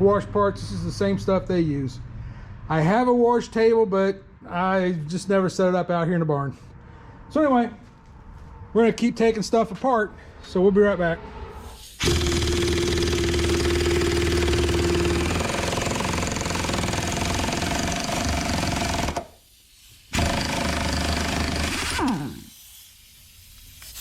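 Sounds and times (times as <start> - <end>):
impact wrench hammering: 12.0 - 19.4, 20.1 - 22.2.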